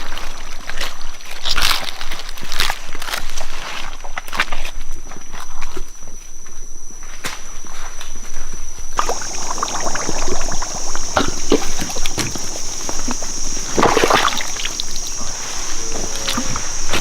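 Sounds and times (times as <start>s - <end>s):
high-pitched insect drone: 5.9s - 17.0s
footsteps squelching through mud: 9.0s - 17.0s.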